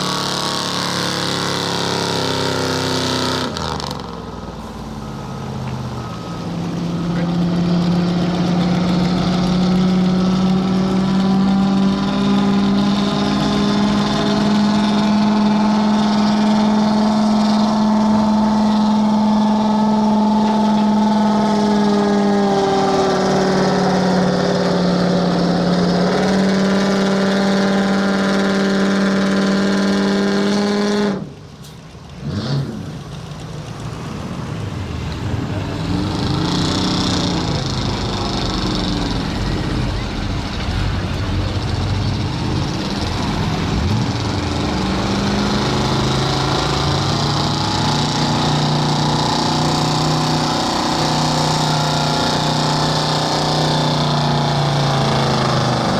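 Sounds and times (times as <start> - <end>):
quieter truck engine revving: 0.0 - 55.9
truck engine at high revs: 0.0 - 55.9.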